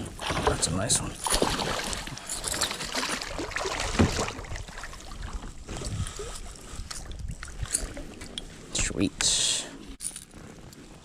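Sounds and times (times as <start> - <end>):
wind noise on microphone: 3.9 - 9.4.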